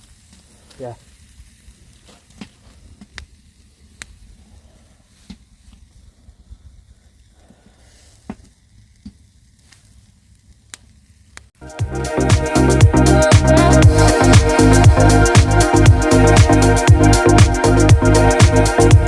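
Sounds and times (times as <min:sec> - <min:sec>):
meat sizzling on a grill: 0:00.0 - 0:11.5
fire pops and crackles: 0:00.0 - 0:11.6.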